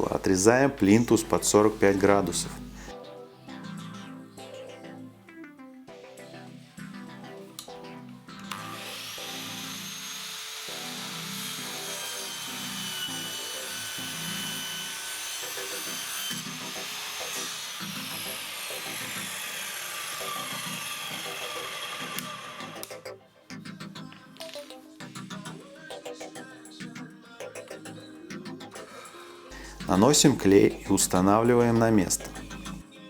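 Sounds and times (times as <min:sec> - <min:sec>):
miter saw motor whining: 0:08.4 - 0:23.0.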